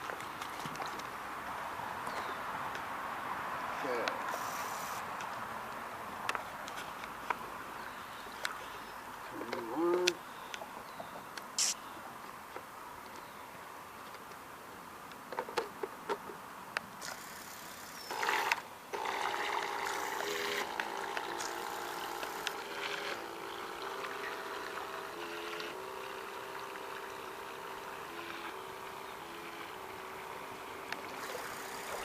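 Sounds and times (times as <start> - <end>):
model boat motor whining: 17.1 - 32.0.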